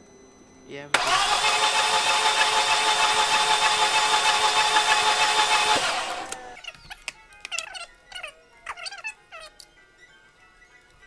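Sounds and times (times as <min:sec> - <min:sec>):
starter motor cranking engine: 0:01.0 - 0:06.6.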